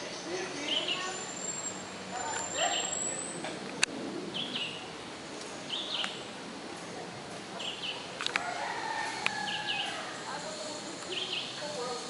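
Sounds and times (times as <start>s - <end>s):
high paired bird chirps: 0.0s - 3.4s, 4.3s - 4.8s, 9.3s - 12.0s.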